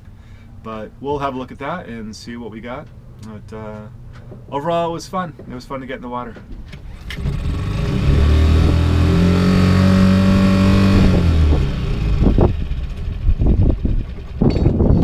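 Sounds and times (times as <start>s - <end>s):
engine revving: 6.9s - 14.0s.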